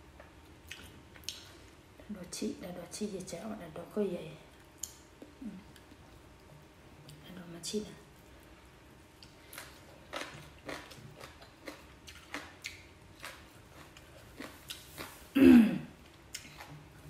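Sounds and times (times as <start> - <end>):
close chewing wet mouth clicks: 10.1 - 13.4
short falling throat sound: 15.3 - 15.9.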